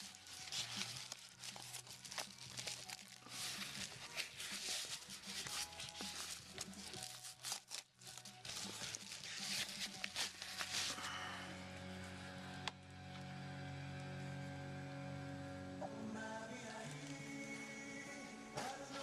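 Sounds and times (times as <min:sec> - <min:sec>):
plastic packaging crinkling: 0:00.0 - 0:11.4
background music: 0:00.0 - 0:19.0.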